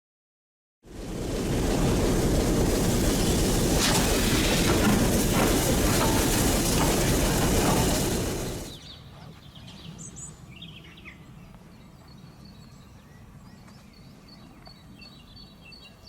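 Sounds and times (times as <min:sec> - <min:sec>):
steam train rumbling on track: 0:00.9 - 0:09.1.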